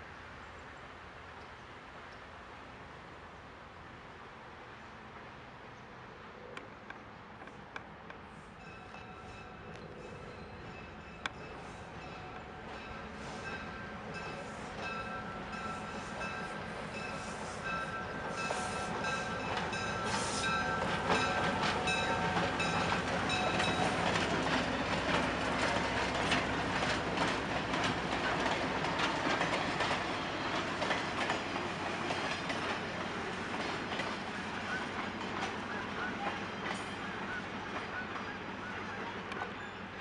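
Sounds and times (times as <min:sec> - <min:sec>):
train wheels clicking over rail joints: 0:08.9 - 0:38.3.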